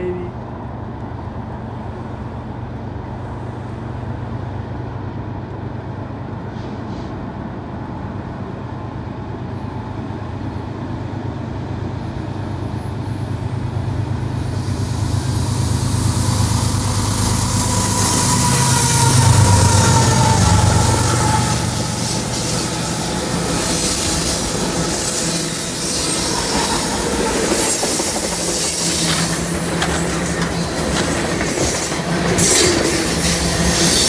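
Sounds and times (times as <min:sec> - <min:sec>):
diesel locomotive engine rumble: 0:00.0 - 0:34.0
rush of rail noise: 0:00.0 - 0:34.0.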